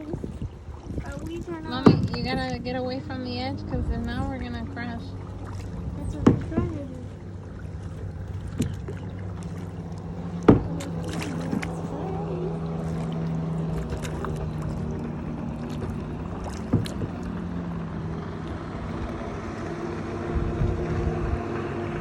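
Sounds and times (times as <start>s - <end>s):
low motor hum: 0.0s - 22.0s
paddles in water: 0.0s - 22.0s
paddle knocking against hull: 0.2s - 12.0s, 12.6s - 17.9s.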